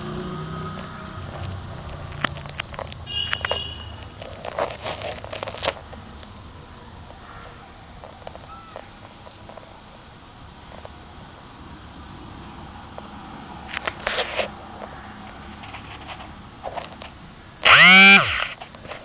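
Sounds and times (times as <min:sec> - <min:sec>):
sharp clicks: 0:00.7 - 0:06.4, 0:16.9 - 0:19.0
bird chirping: 0:01.2 - 0:18.9.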